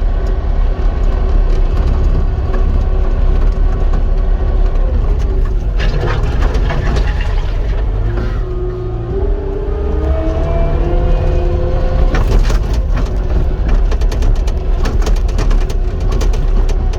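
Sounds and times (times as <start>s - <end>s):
diesel engine running: 0.0s - 16.9s.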